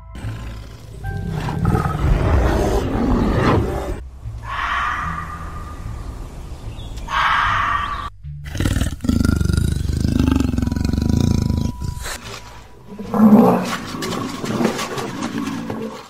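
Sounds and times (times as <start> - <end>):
leopard growling and roaring: 0.0 - 6.2, 6.8 - 16.0
loud low animal call: 0.2 - 11.8
fox call: 7.1 - 8.1.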